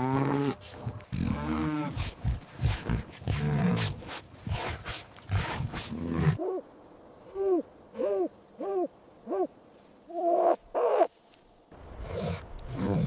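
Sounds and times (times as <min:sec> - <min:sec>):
owl hooting: 0:07.3 - 0:09.5, 0:10.1 - 0:11.2.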